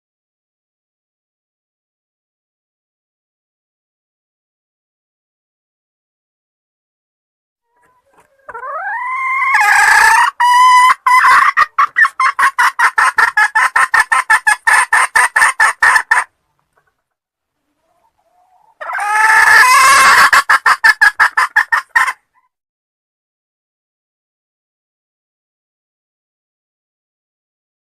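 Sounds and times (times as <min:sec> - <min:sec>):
junglefowl call with clucks: 0:07.7 - 0:16.3, 0:17.8 - 0:22.5.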